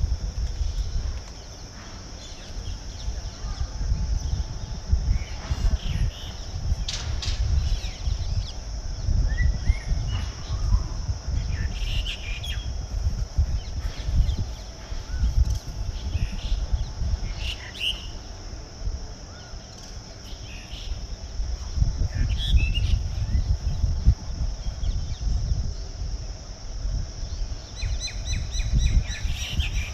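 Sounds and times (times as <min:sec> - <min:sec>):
high-pitched hiss: 0:00.0 - 0:29.9
birds chirping and calling: 0:05.1 - 0:12.7, 0:13.5 - 0:18.2, 0:27.3 - 0:29.9.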